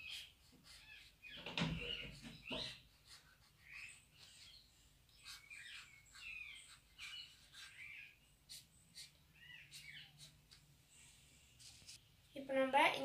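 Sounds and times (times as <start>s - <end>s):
faint bird chirps: 0.0s - 11.2s
pen writing on paper: 5.1s - 9.1s.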